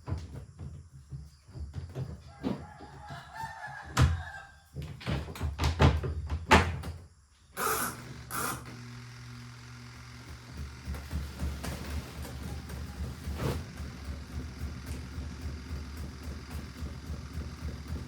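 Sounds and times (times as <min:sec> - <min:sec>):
rooster crowing: 0:02.3 - 0:04.7
sharp knocks and clatter: 0:04.8 - 0:07.0, 0:10.3 - 0:18.0
short hissing bursts: 0:07.6 - 0:08.6
low machine hum: 0:07.6 - 0:18.0.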